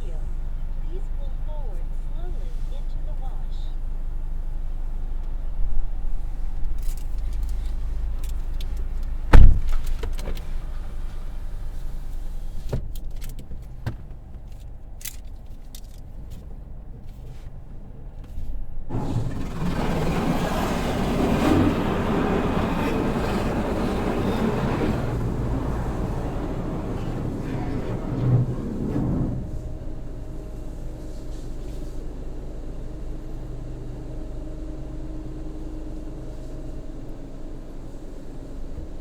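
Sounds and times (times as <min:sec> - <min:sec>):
loud thump: 0:09.3 - 0:09.8
knocks and clunks: 0:09.3 - 0:10.5, 0:18.9 - 0:30.8
low steady hum: 0:14.3 - 0:39.0
car wash equipment rushing: 0:18.8 - 0:39.0.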